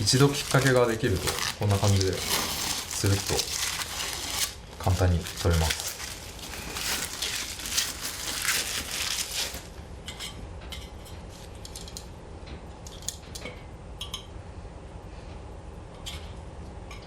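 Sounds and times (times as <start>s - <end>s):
vinyl film peeling off: 0.0s - 9.7s.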